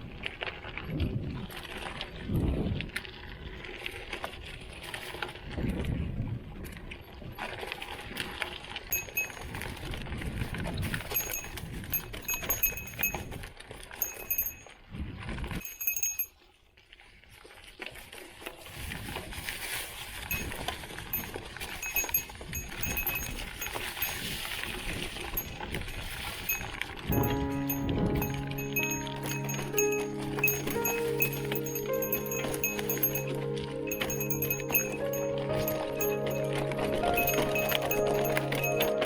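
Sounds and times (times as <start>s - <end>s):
small bell jingling: 8.9s - 9.6s, 11.0s - 13.4s, 14.0s - 14.7s, 15.6s - 16.3s, 20.3s - 39.0s.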